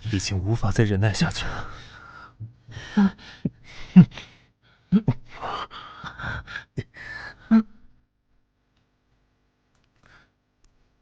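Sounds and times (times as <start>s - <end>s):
man gasping and breathing heavily: 1.4s - 7.9s.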